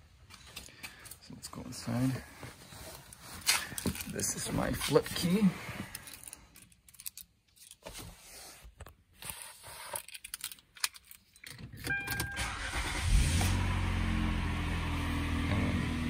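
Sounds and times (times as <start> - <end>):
car engine starting and idling: 11.8 - 16.0
short beep: 11.9 - 12.7.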